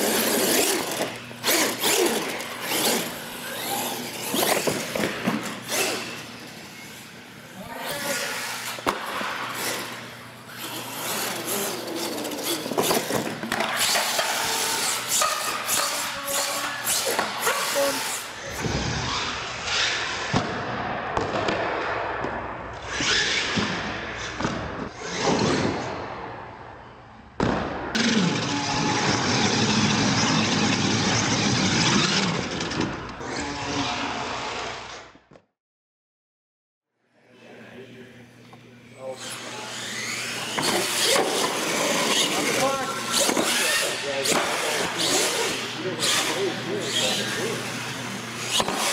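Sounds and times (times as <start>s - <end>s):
toy truck motor whining: 0.0s - 7.1s, 9.6s - 18.6s, 39.2s - 48.9s.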